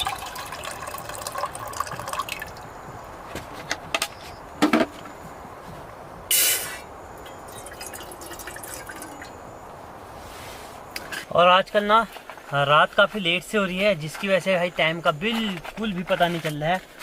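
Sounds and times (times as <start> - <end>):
water pouring and dripping: 0.0 - 2.7, 7.2 - 9.4
short sharp hiss: 6.3 - 6.9.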